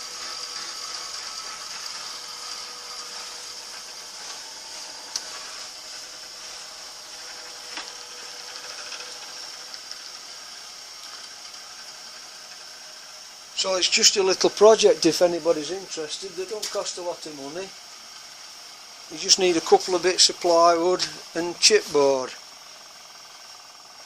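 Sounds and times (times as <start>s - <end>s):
bench grinder running: 0.0s - 24.0s.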